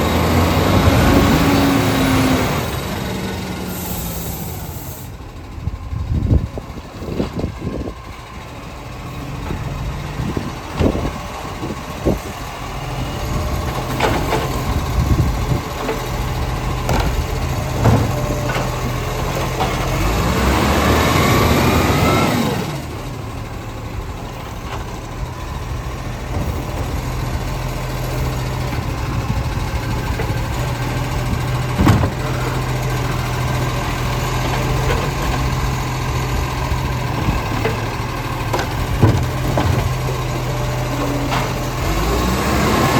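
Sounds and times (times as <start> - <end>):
garbage truck engine running: 0.0 - 42.9
knocks and clunks: 9.4 - 11.8, 13.6 - 20.0, 26.2 - 27.6, 28.5 - 32.9, 37.1 - 41.8.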